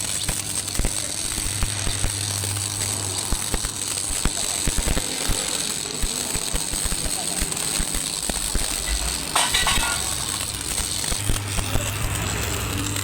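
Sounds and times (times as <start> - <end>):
low hum: 8.6 - 13.0.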